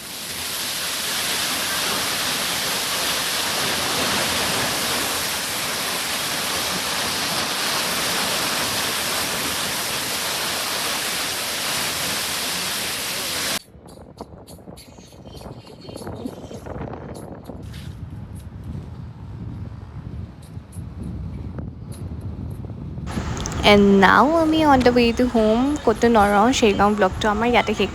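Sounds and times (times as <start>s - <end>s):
waterfall rushing: 0.0s - 13.6s, 23.1s - 27.9s.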